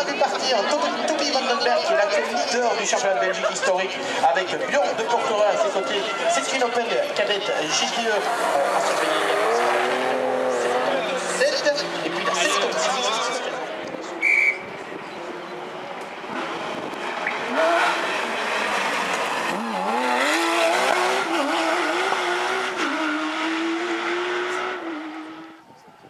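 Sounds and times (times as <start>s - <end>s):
rally car engine accelerating: 7.8s - 12.9s, 16.2s - 25.6s.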